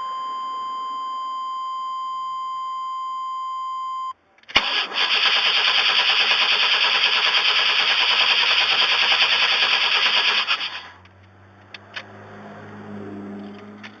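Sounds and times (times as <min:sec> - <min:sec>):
engine cranking on starter: 0:04.5 - 0:11.0.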